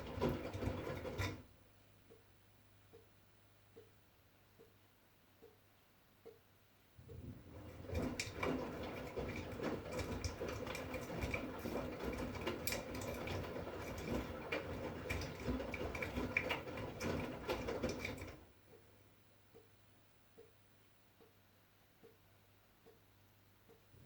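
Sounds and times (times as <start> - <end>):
laundry and water sloshing: 0.0 - 1.4, 7.0 - 18.5.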